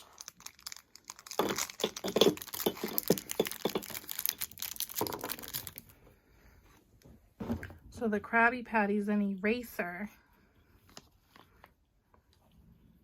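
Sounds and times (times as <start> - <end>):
plastic wrapper crinkling and tearing: 0.0 - 6.0.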